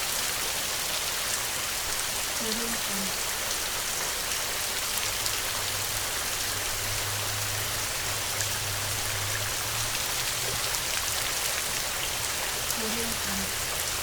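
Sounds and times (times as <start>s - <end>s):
heavy rain hissing: 0.0s - 14.0s
raindrop ticks: 5.1s - 14.0s.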